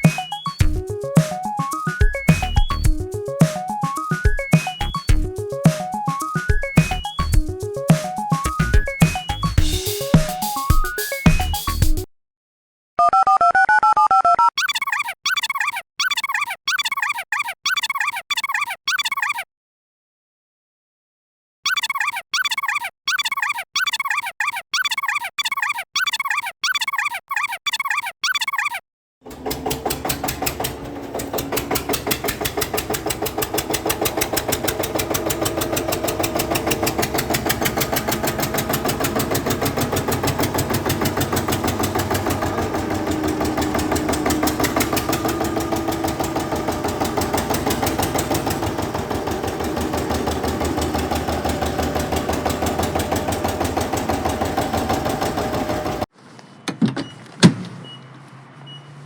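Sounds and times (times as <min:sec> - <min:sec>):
tractor engine chugging: 0:08.5 - 0:11.9, 0:29.3 - 0:56.1.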